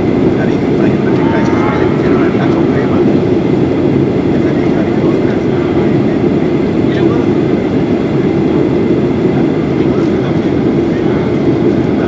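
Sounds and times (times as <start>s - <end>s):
airplane cabin rumble: 0.0s - 8.8s.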